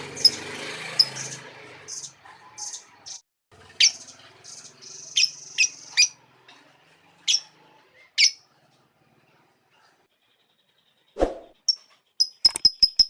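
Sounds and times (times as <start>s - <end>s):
bird chirping: 3.8s - 6.2s.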